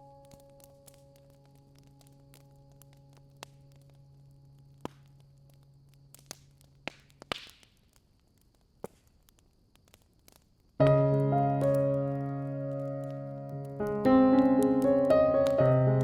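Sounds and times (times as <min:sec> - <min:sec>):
piano music: 0:00.0 - 0:03.8, 0:10.8 - 0:16.0
wood fire crackling: 0:00.0 - 0:16.0.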